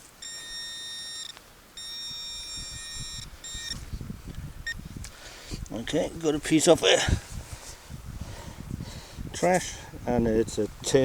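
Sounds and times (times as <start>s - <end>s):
metal detector high tone: 0.0s - 3.8s.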